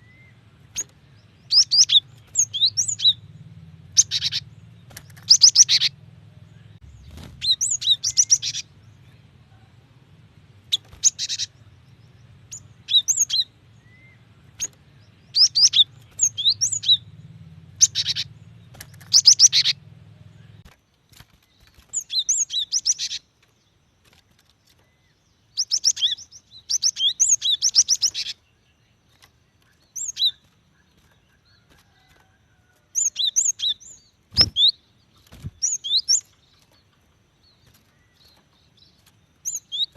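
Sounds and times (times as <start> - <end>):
bird chattering calls: 0.0 - 3.3, 3.9 - 6.0, 6.7 - 9.7, 10.6 - 20.6, 25.6 - 28.5, 30.0 - 36.6
faint low hum: 0.0 - 39.9.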